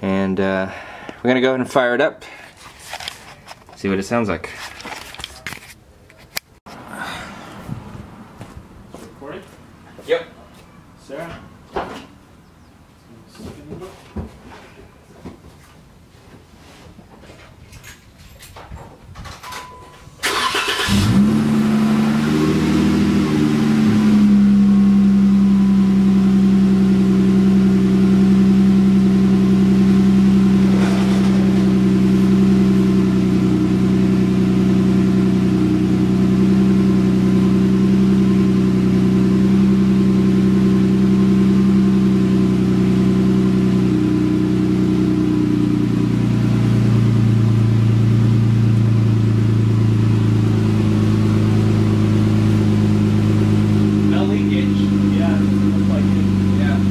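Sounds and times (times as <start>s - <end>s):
car engine idling: 20.2s - 56.9s
car engine starting: 20.2s - 56.9s.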